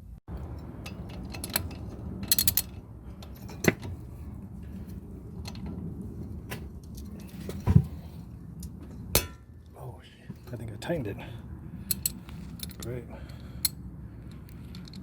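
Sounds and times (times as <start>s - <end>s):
low steady rumble: 0.0s - 15.0s
metal tools clicking and clinking: 0.4s - 3.9s, 11.9s - 13.8s
sharp metal clank: 9.1s - 9.5s.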